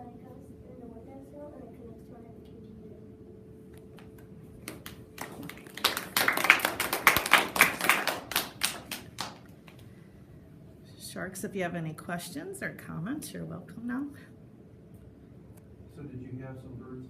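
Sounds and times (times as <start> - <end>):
small group clapping: 3.9 - 9.9.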